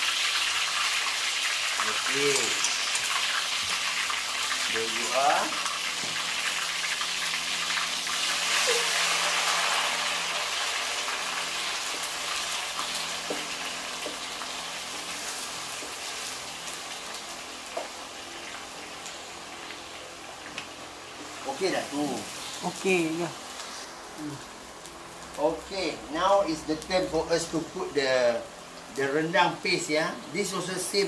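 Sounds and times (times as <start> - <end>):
paste sizzling in hot oil: 0.0 - 19.2.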